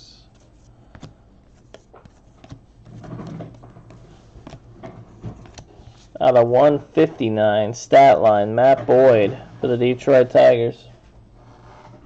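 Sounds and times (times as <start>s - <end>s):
cards clicking and sliding: 0.3s - 6.2s.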